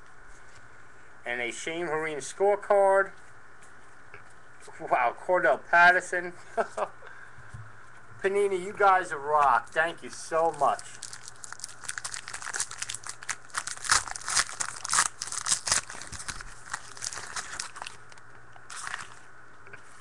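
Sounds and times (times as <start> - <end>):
foil wrapper crinkling and tearing: 10.1 - 19.3.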